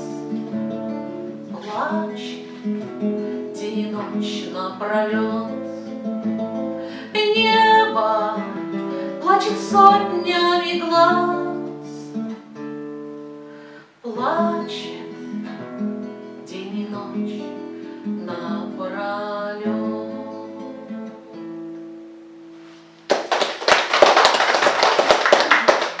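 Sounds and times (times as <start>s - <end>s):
acoustic guitar playing: 0.0s - 23.1s
applause: 23.1s - 26.0s.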